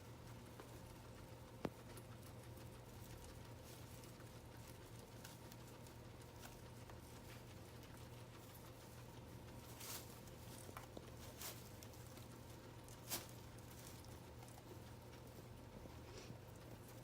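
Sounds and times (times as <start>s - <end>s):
guinea pigs chewing hay: 0.0s - 17.0s
hay rustling: 9.6s - 14.1s.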